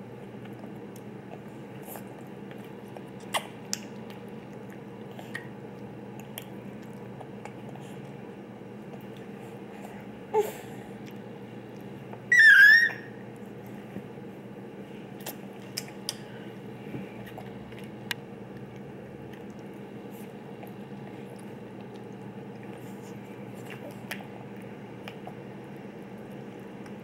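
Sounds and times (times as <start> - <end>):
baby squealing: 12.3 - 13.2.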